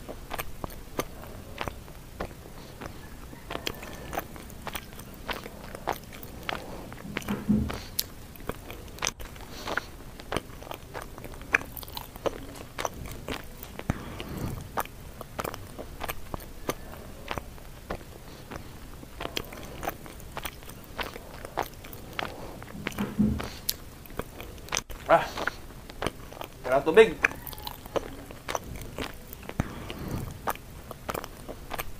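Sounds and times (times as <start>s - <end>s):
mouth clicks: 0.0s - 31.9s
person crunching food: 0.0s - 31.9s.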